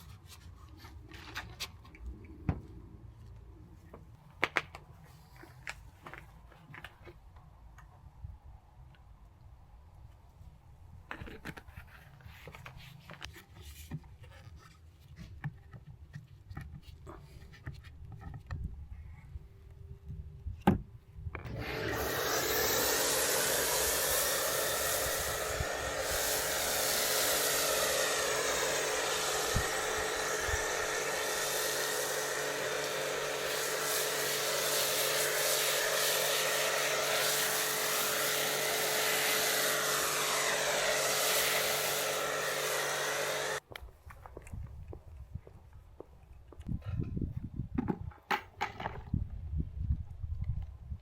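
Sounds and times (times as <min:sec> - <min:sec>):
electric machine motor hum and hiss: 0:21.5 - 0:43.6.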